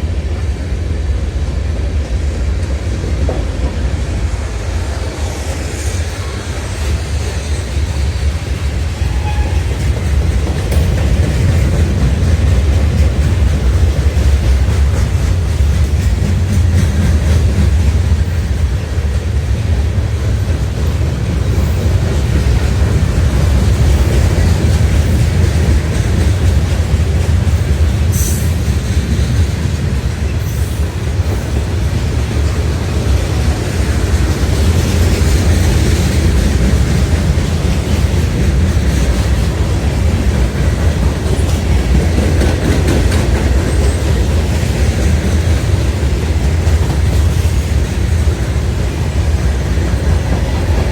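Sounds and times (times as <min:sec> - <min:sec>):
freight train rumbling past: 0:00.0 - 0:50.9
high wheel squeal: 0:09.0 - 0:09.8.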